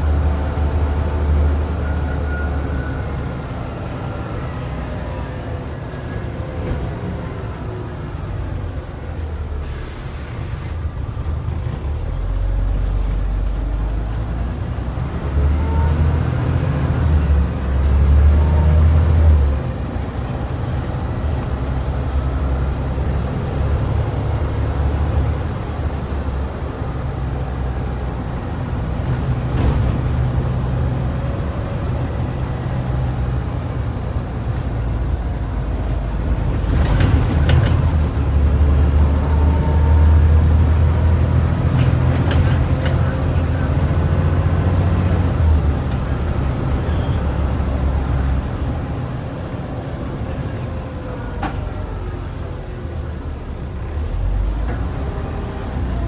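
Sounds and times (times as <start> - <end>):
bus diesel engine under load: 0.0 - 56.0
air hiss: 9.6 - 10.8.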